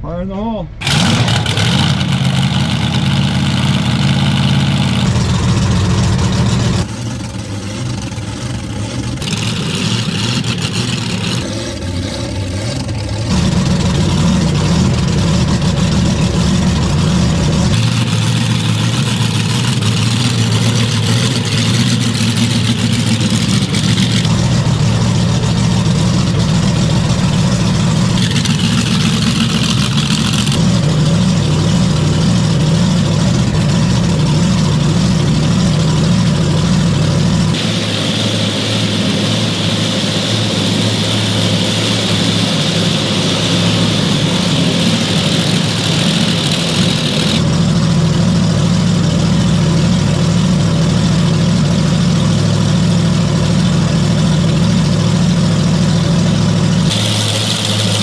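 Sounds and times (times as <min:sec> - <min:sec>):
large vehicle engine idling: 0:00.7 - 0:58.0
high hiss: 0:37.6 - 0:47.4.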